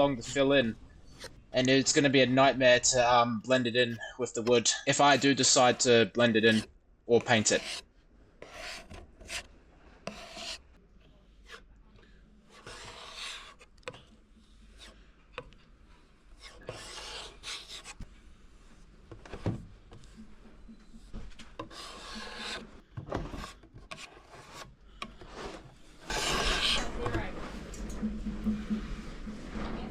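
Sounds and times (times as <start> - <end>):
scraper blade rasping on wood: 4.9 - 6.7, 7.3 - 7.8, 8.4 - 9.5, 10.1 - 10.6, 12.5 - 14.1, 16.4 - 18.0, 21.6 - 22.7, 23.4 - 27.1.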